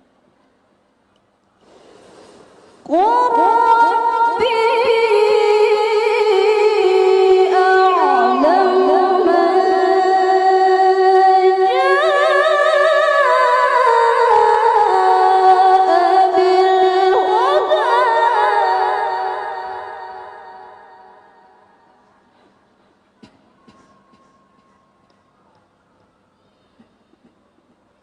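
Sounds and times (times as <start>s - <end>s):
woman reciting melodically: 2.9s - 21.2s.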